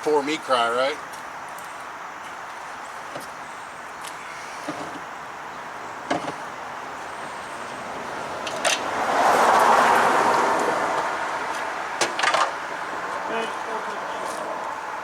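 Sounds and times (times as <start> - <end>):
vehicle passing by: 7.0 - 15.0.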